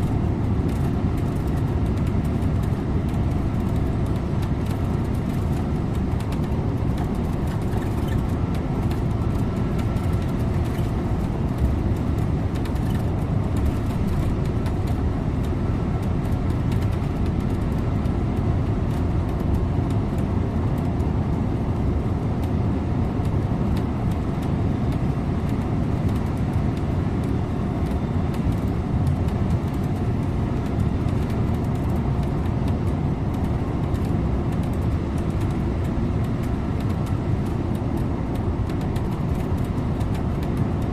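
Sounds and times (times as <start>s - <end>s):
bus engine and tyre drone: 0.0s - 40.9s.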